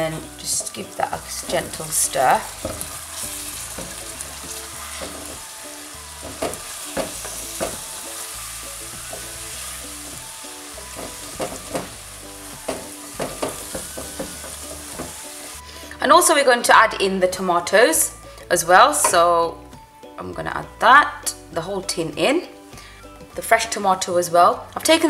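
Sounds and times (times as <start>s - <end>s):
chicken sizzling in hot oil: 0.0s - 15.8s.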